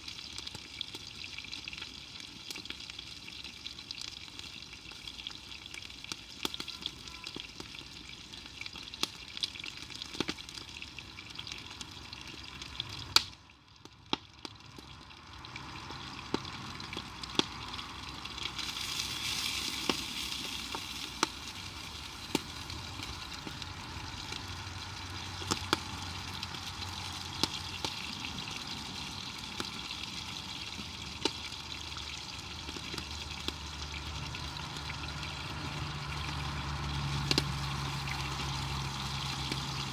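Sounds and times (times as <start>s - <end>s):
food sizzling in a pan: 0.0s - 39.9s
pops and crackles: 8.7s - 10.8s, 12.5s - 15.1s, 16.2s - 24.5s, 25.2s - 28.5s, 32.4s - 33.6s, 37.0s - 39.8s.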